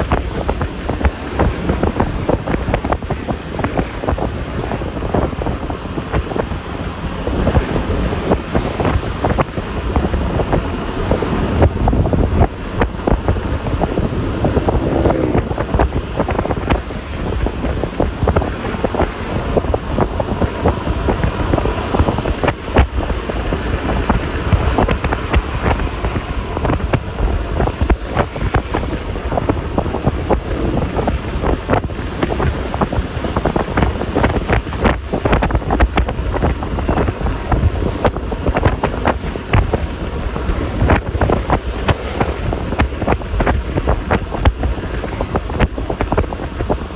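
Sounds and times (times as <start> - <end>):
tyre and road noise: 0.0 - 46.9
wind buffeting microphone: 0.0 - 46.9
scooter engine running: 9.6 - 18.9.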